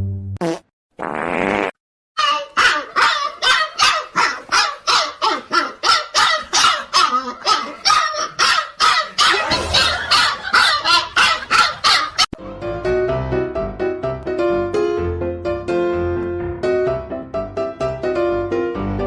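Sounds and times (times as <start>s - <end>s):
dog barking: 2.3s - 12.3s.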